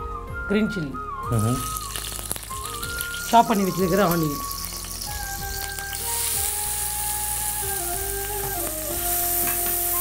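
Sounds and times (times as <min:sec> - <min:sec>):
background music of held notes: 0:00.0 - 0:10.0
onions sizzling in hot oil: 0:01.4 - 0:10.0.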